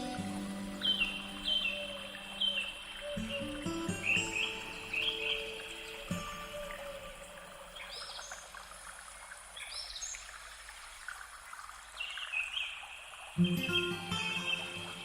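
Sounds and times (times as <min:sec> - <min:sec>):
birds chirping: 0:00.0 - 0:08.6, 0:11.9 - 0:15.0
faint watery hiss: 0:00.0 - 0:15.0.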